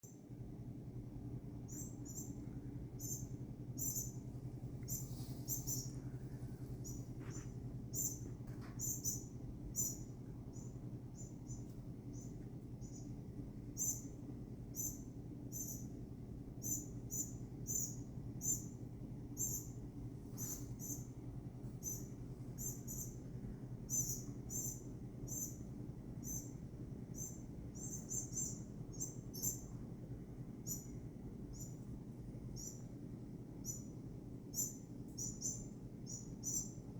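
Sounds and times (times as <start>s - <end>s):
steady low hum: 0.0s - 36.9s
small bird chirping: 1.6s - 16.0s, 16.6s - 21.2s, 21.8s - 29.8s, 30.6s - 31.9s, 32.5s - 33.0s, 33.6s - 36.9s.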